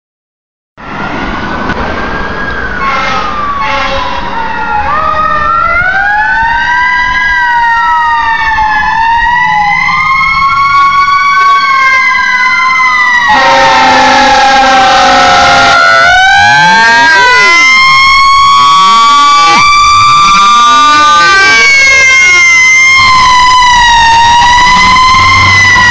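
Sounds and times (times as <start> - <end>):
emergency sirens wailing: 0.8 - 25.9
blaring horn blast: 2.8 - 4.2, 13.2 - 21.8.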